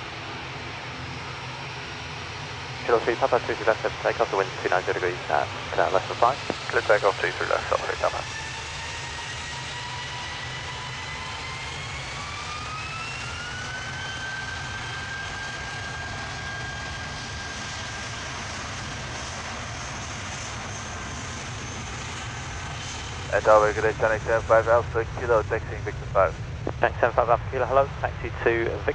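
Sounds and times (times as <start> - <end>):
jet engines whining: 0.0 - 28.9.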